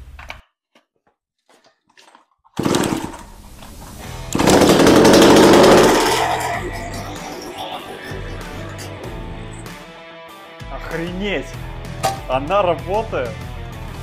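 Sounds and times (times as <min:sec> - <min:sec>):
chainsaw engine starting and revving: 0:02.6 - 0:06.8.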